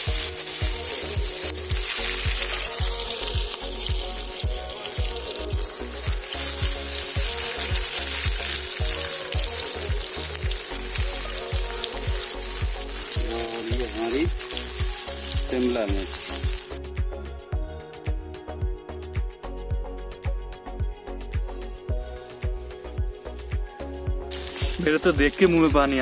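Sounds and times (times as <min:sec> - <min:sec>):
onion and tomato sizzling in pan: 0:00.0 - 0:16.8, 0:24.3 - 0:26.0
background music with steady beat: 0:00.0 - 0:26.0.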